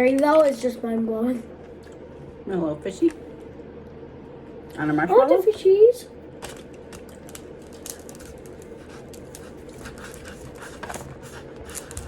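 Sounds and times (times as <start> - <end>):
steady low hum: 0.0 - 12.0
candy being handled and eaten: 6.4 - 12.0.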